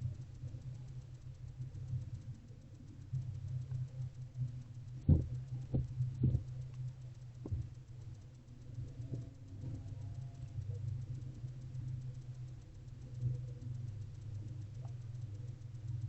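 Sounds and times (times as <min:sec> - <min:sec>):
steady low hum: 0:00.0 - 0:16.0
soft knocks and thumps: 0:05.1 - 0:06.5, 0:07.4 - 0:07.7.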